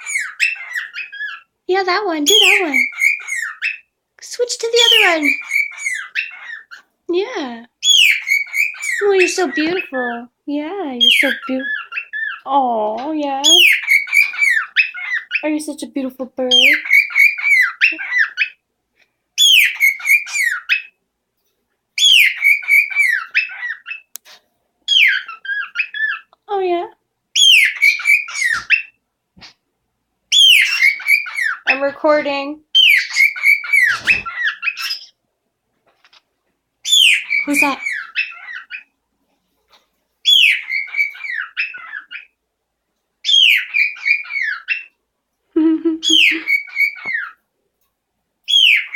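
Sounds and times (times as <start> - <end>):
bird whistling and warbling: 0.0 - 1.5, 2.2 - 3.9, 4.7 - 6.8, 7.8 - 10.2, 11.0 - 12.5, 13.4 - 15.5, 16.5 - 18.6, 19.4 - 21.0, 22.0 - 24.1, 24.9 - 26.3, 27.4 - 29.6, 30.3 - 31.9, 32.8 - 35.2, 36.8 - 38.9, 40.2 - 42.3, 43.2 - 44.9, 46.0 - 47.4, 48.5 - 48.9
pet bird whistling: 7.8 - 9.0, 22.0 - 24.0, 27.4 - 28.9, 30.3 - 31.6, 40.3 - 42.3, 46.0 - 47.4.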